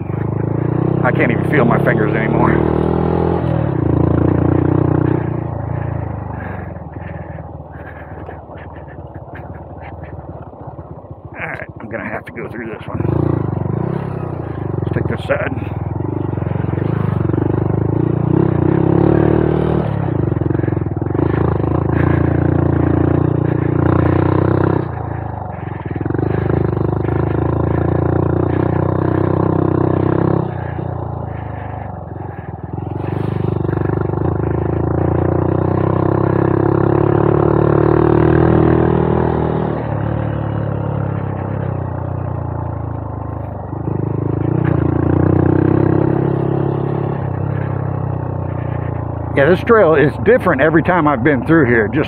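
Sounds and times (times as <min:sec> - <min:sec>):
motorcycle engine under throttle: 0:00.0 - 0:52.0.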